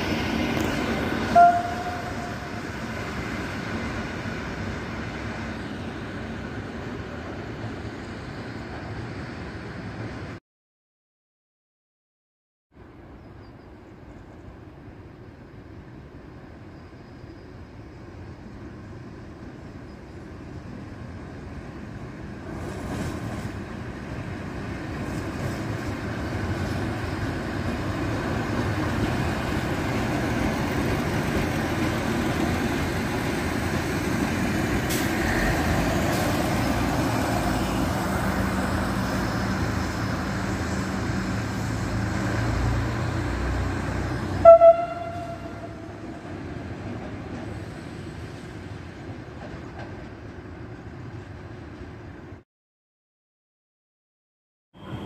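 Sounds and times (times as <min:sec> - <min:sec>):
diesel railcar passing: 0:00.0 - 0:10.4, 0:12.8 - 0:52.4, 0:54.8 - 0:55.0
train horn toot: 0:01.3 - 0:02.6, 0:44.4 - 0:46.0.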